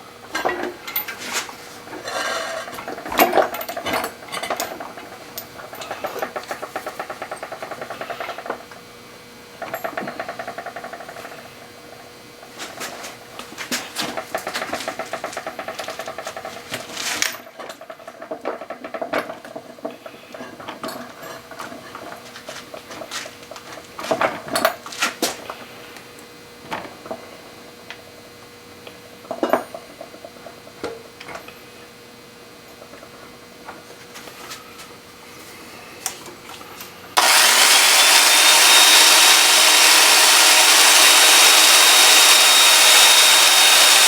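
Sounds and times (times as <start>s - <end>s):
drill chattering into steel bolt: 37.2s - 44.0s.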